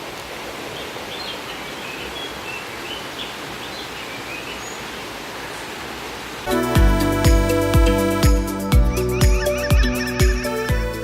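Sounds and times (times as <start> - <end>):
stream rushing: 0.0 - 11.0
background music: 6.5 - 11.0
bird chirping: 8.7 - 10.7.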